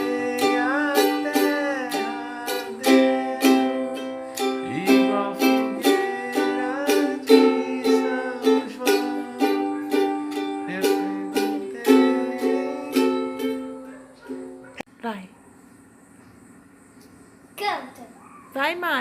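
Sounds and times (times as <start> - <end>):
ukulele strumming: 0.0 - 14.7.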